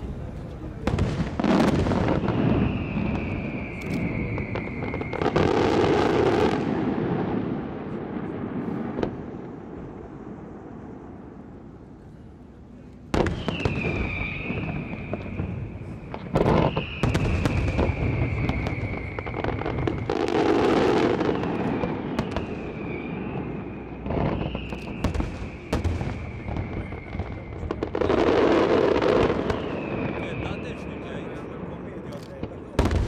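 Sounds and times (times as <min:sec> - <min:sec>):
fireworks bursting and crackling: 0:00.0 - 0:11.7, 0:13.0 - 0:33.0
falling high whistle: 0:02.0 - 0:06.2, 0:13.3 - 0:27.9.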